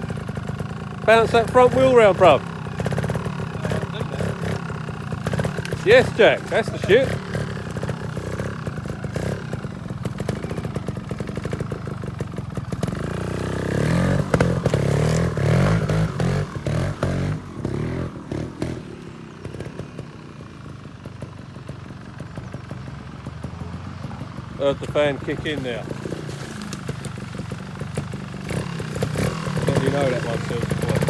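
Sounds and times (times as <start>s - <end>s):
motorbike engine revving: 0.0s - 31.0s.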